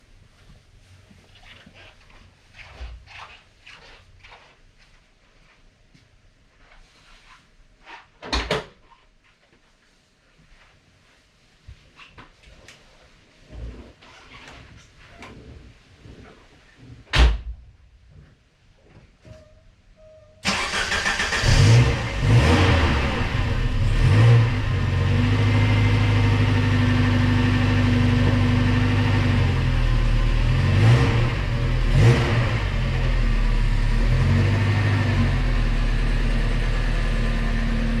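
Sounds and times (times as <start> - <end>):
car engine fast idle: 20.5 - 22.2.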